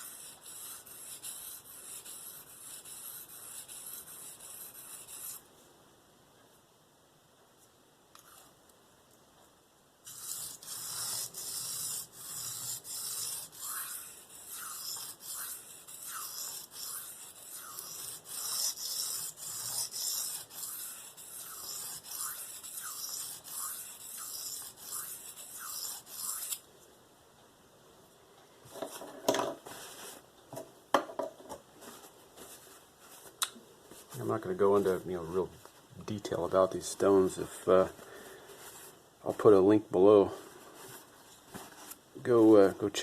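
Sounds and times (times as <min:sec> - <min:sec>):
knife scraping on sharpening stone: 0:10.1 - 0:26.6.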